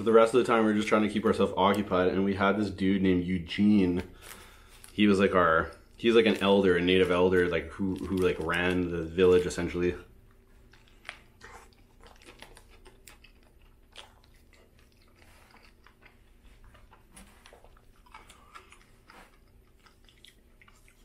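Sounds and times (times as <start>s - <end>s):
low steady hum: 0.0s - 21.0s
wet chewing clicks: 10.2s - 21.0s.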